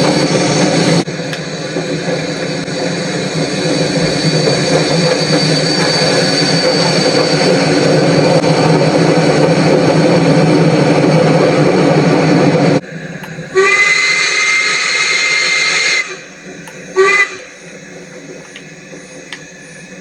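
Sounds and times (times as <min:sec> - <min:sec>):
steam train running: 0:00.0 - 0:20.0
steam locomotive whistle: 0:02.5 - 0:08.1, 0:13.5 - 0:17.8.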